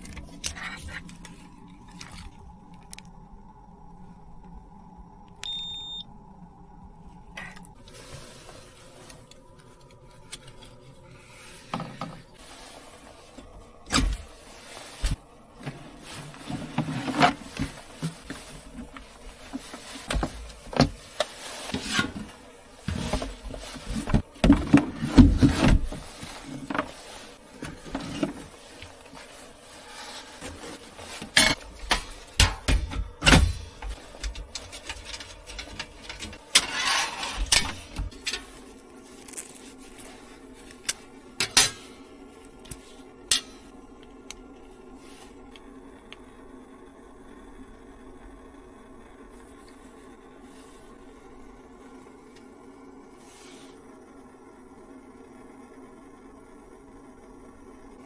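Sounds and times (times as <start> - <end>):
objects being handled: 0.0 - 3.1, 7.4 - 45.6
rustling scrape: 10.5 - 32.4, 33.6 - 42.1.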